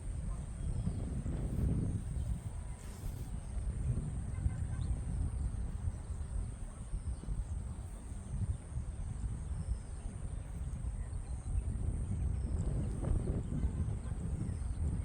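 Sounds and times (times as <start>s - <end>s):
steady high-pitched whine: 0.0s - 15.0s
wind buffeting microphone: 0.0s - 15.0s
faint bird chirps: 4.3s - 15.0s.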